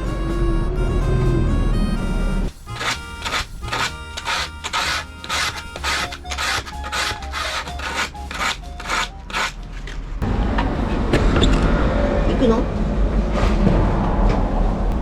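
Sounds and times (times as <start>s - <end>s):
sanding wood by hand: 2.6s - 9.6s.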